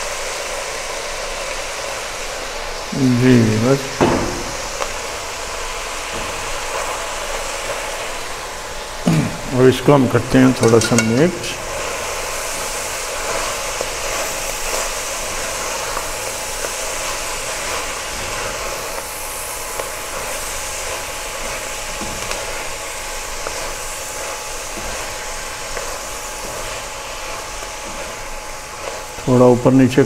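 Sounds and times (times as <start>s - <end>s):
food sizzling in hot oil: 0.0s - 30.0s
spatula knocking: 10.6s - 11.4s.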